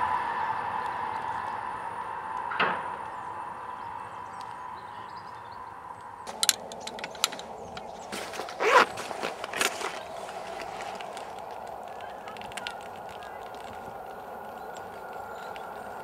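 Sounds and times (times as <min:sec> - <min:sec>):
electric train whining hum: 0:00.0 - 0:16.0
sharp clicks and scrapes: 0:06.3 - 0:13.9.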